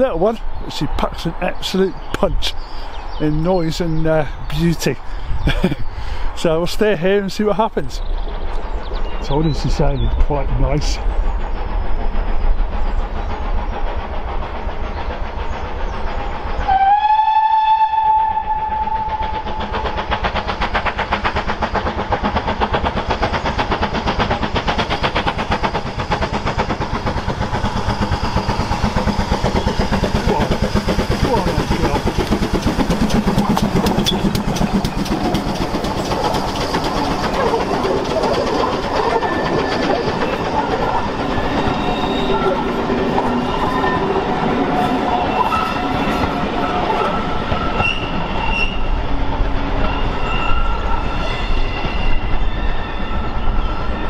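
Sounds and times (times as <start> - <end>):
steam locomotive exhaust beats: 0.0 - 54.0
train wheels rolling: 0.0 - 54.0
steam locomotive whistle: 16.6 - 19.5, 44.8 - 49.0, 49.8 - 54.0.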